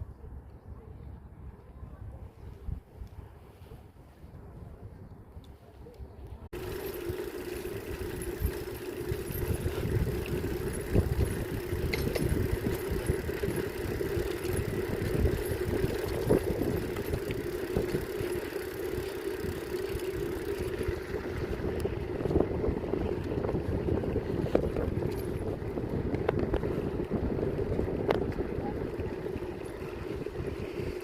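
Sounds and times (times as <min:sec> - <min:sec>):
bicycle tyres rolling: 0:06.5 - 0:31.0
bicycle knocks and rattles: 0:06.6 - 0:31.0.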